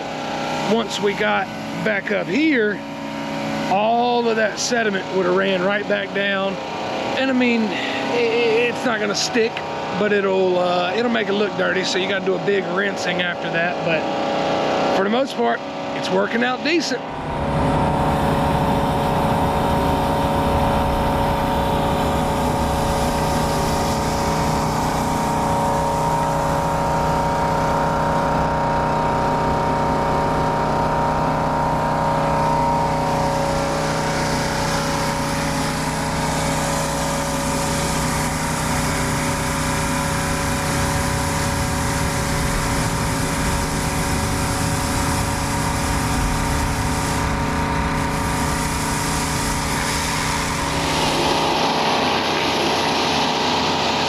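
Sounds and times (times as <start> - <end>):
pressure washer engine running: 0.0 - 54.0
water blasting concrete hiss: 17.9 - 27.9, 32.7 - 54.0.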